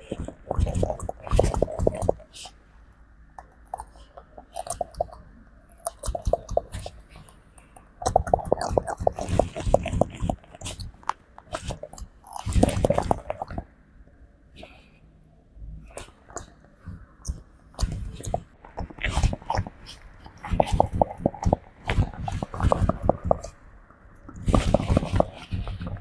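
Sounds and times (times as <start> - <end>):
monkey clicks and smacks: 0.1 - 2.5, 3.4 - 13.6, 15.9 - 23.6.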